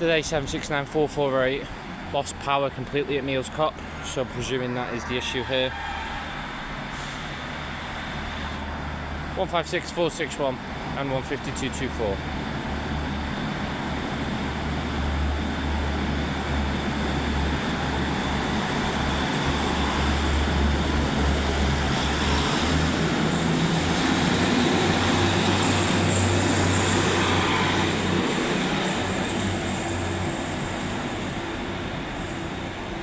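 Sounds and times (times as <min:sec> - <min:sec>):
diesel train passing: 0:00.0 - 0:33.0.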